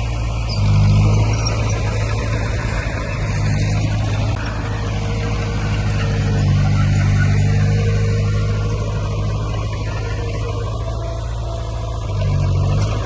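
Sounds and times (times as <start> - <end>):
heavy machinery diesel engine running: 0.0 - 13.0.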